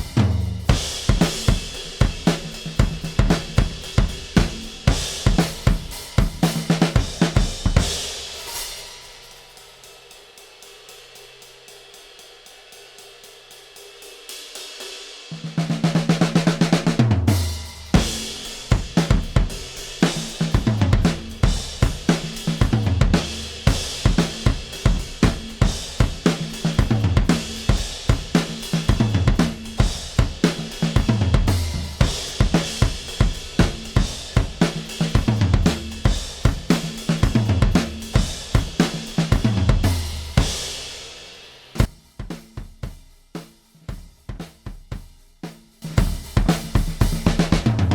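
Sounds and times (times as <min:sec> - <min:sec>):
drum loop: 0:00.0 - 0:08.4, 0:15.5 - 0:40.9, 0:45.9 - 0:47.9.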